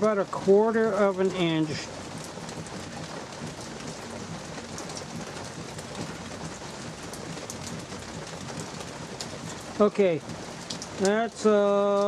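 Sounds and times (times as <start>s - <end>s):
drops ticking: 0.0s - 12.0s
light drizzle pattering: 0.0s - 12.0s.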